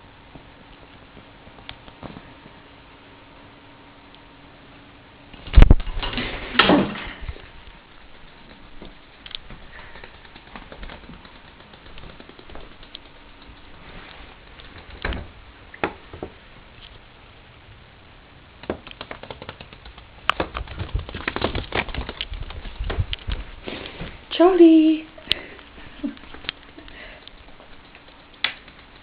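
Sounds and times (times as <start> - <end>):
bird beak and feet tapping: 7.9 - 16.0, 18.6 - 23.4, 25.3 - 29.0.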